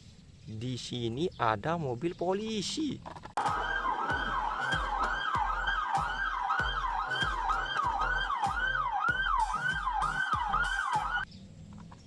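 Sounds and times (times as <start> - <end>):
low thumping beat: 3.4 - 11.2
toy siren wailing: 3.4 - 11.2.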